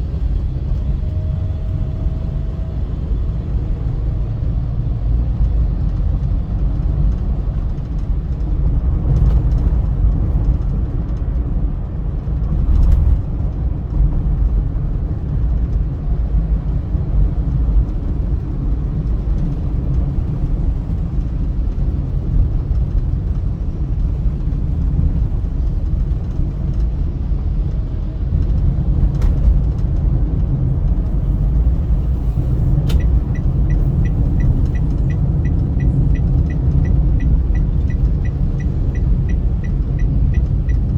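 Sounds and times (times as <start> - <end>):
car road and engine rumble: 0.0 - 40.9.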